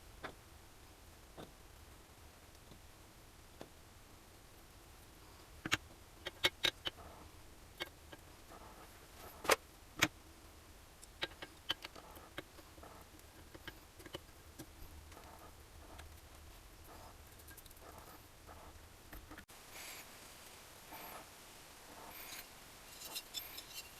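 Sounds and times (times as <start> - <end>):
tools and parts clicking and knocking: 22.2 - 23.9.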